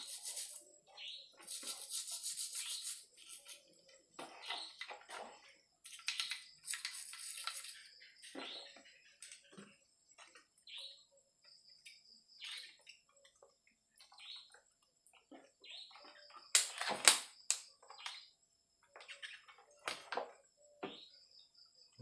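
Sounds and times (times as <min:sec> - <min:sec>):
brush scrubbing wet metal: 0:00.0 - 0:00.7, 0:01.3 - 0:05.4, 0:06.6 - 0:07.9.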